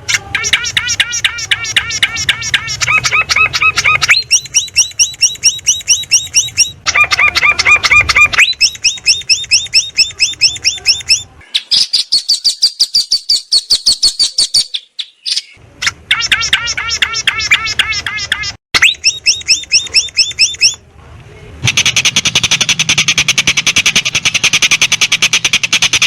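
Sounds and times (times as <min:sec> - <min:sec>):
songbird chirps: 0:00.0 - 0:26.0
higher thinner chirps: 0:00.2 - 0:20.8.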